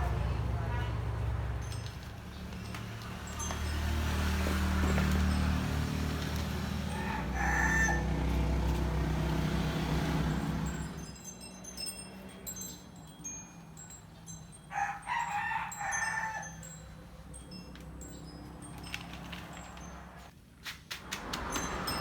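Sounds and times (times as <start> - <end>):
rooster crowing: 6.6 - 9.0, 14.7 - 16.8.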